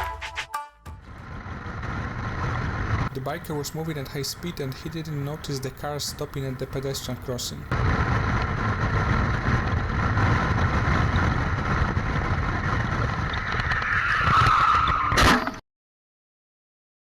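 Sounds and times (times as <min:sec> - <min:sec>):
sharp crash impact: 0:00.0 - 0:03.1
motorcycle engine at high speed: 0:01.0 - 0:05.0, 0:07.7 - 0:13.9.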